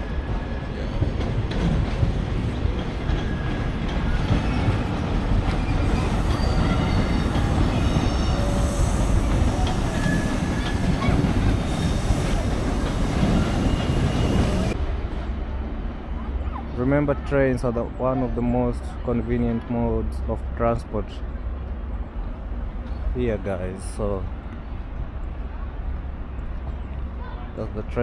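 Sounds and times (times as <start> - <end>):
train rumbling: 0.0 - 28.0
train wheels squealing: 3.0 - 14.8.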